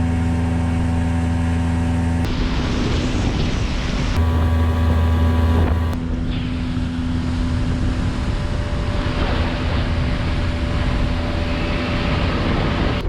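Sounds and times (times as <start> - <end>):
boat motor running: 4.2 - 6.0.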